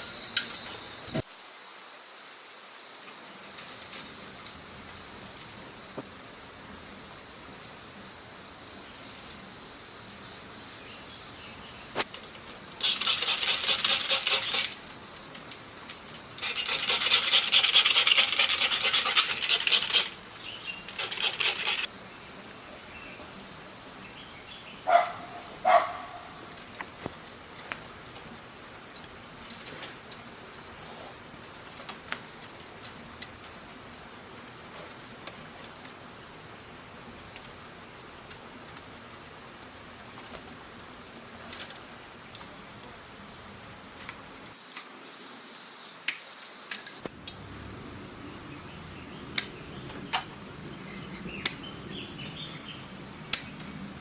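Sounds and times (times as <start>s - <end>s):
rasping scrape: 12.8s - 15.0s, 16.3s - 20.2s, 20.8s - 21.9s.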